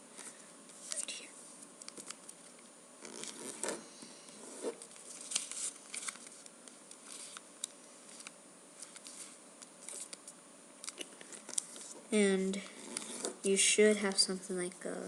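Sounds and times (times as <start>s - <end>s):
paper rustling and creasing: 2.0s - 7.4s, 8.1s - 13.5s.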